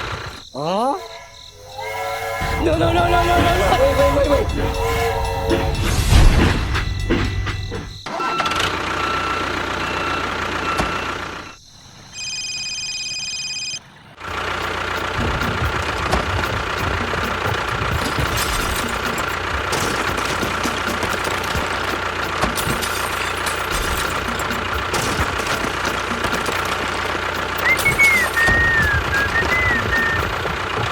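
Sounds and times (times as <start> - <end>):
engine running: 0.0 - 11.6, 14.2 - 30.9
steady electronic tone: 0.8 - 8.0.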